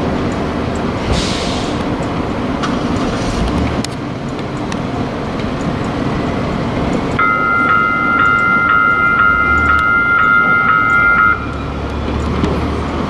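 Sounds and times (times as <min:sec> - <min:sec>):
light rail train rumbling: 0:00.0 - 0:13.0
warning bell ringing: 0:07.2 - 0:11.8.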